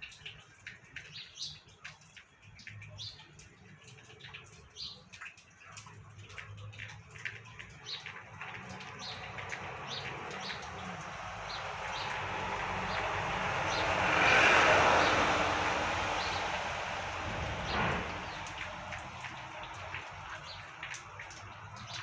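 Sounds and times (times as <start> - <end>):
vehicle passing: 8.3 - 22.0.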